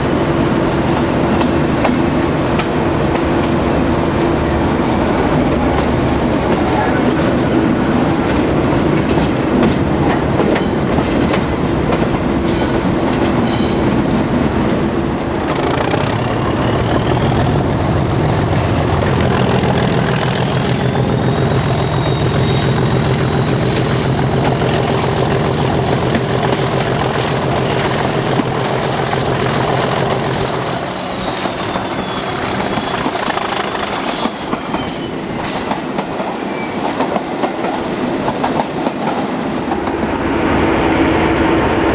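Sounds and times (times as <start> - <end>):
diesel locomotive engine working: 0.0 - 41.9
high whistle: 20.6 - 26.1, 28.6 - 35.2.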